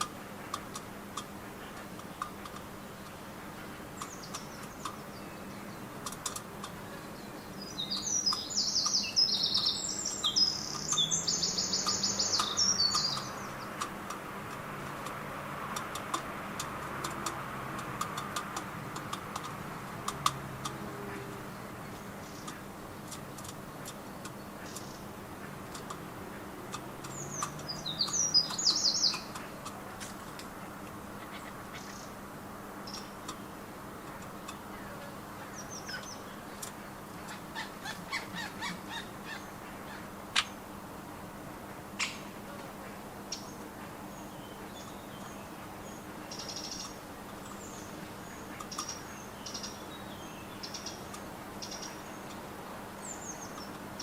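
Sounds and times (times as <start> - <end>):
sharp clicks: 0.0 - 3.2, 3.8 - 6.9, 7.8 - 31.0, 32.8 - 34.7, 36.0 - 37.4, 48.5 - 49.8
small birds chirping: 0.0 - 54.0.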